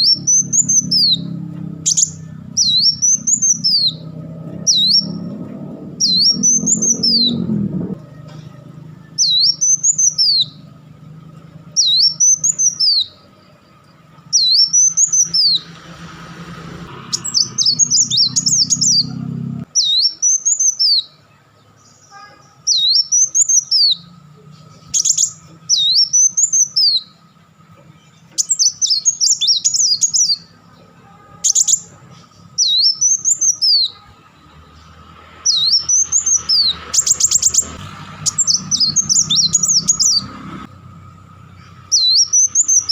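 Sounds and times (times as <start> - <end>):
bird rapid chattering: 0.0 - 5.4, 6.0 - 8.6, 9.2 - 10.7, 11.7 - 13.2, 14.3 - 15.7, 17.1 - 21.0, 22.7 - 27.1, 31.4 - 34.0, 35.4 - 40.3, 41.5 - 42.9
bird calling high note: 0.0 - 10.8.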